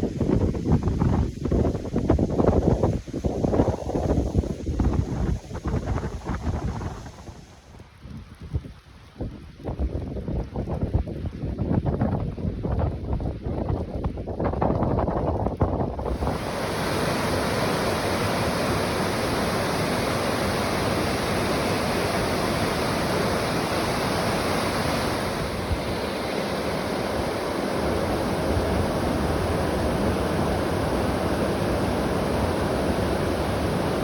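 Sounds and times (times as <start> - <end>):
wind buffeting microphone: 0.0 - 34.0
waterfall rushing: 16.1 - 34.0.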